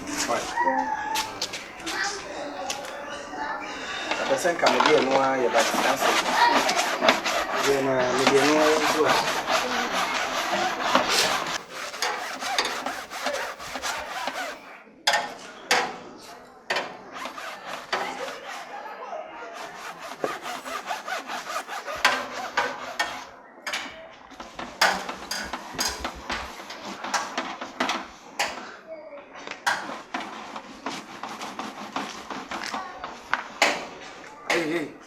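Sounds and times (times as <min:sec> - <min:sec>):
rough scraping and rubbing: 0:00.0 - 0:28.1, 0:29.6 - 0:34.2
sharp knocks: 0:33.6 - 0:34.7.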